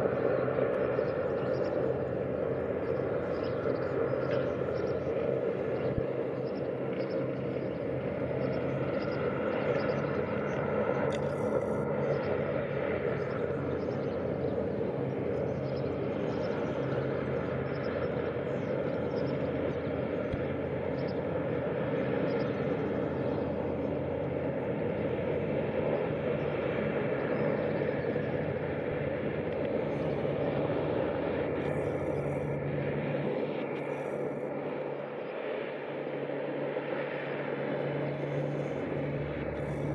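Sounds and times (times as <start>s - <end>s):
ship engines droning: 0.0s - 39.9s.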